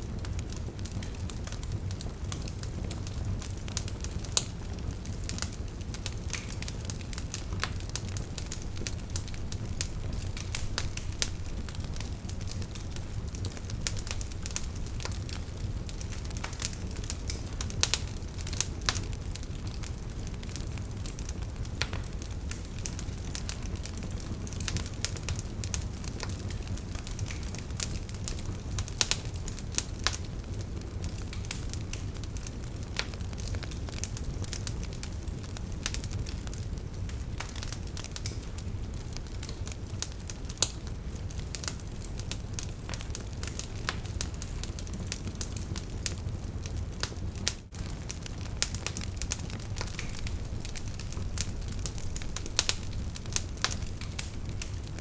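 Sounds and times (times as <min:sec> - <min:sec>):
campfire crackling and popping: 0:00.0 - 0:55.0
rush of flames: 0:00.1 - 0:55.0.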